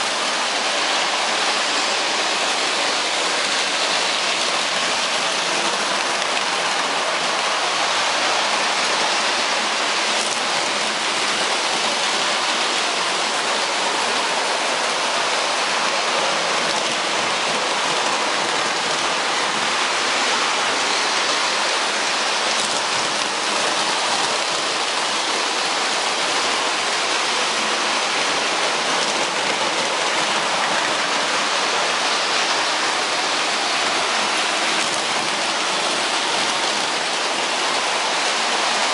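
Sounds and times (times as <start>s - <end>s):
steady rushing hiss: 0.0s - 38.9s.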